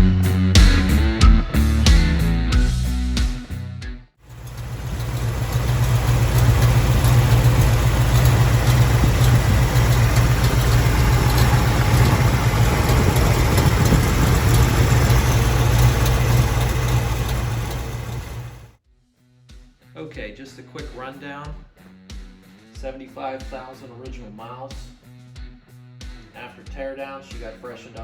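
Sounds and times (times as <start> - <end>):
car engine idling: 4.3 - 18.7.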